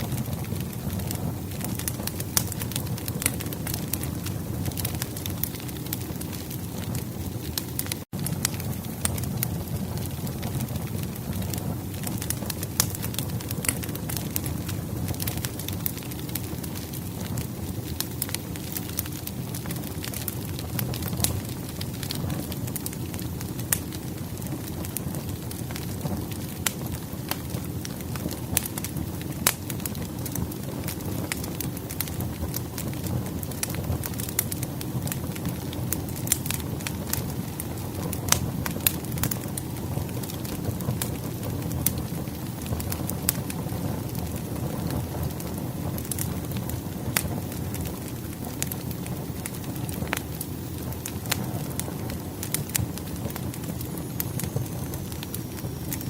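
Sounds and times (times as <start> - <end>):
low rumble of burning logs: 0.0 - 56.0
sharp pops of fire: 0.0 - 56.0
wood fire crackling: 0.0 - 56.0.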